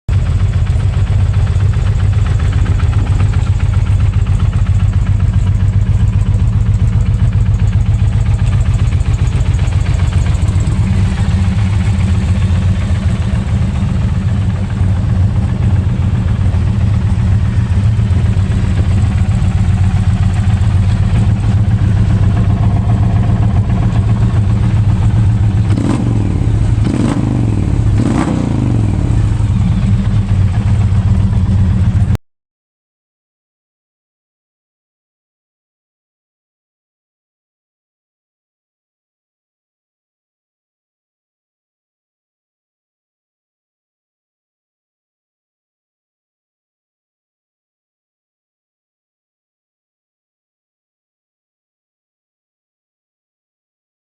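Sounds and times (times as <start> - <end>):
motorcycle engine idling and revving: 0.1 - 32.2.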